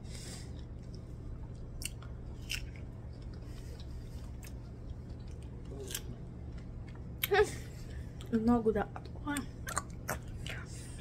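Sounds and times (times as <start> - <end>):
steady low hum: 0.0 - 11.0
person chewing: 0.5 - 8.3, 9.6 - 10.7
wet mouth clicks: 9.6 - 10.7.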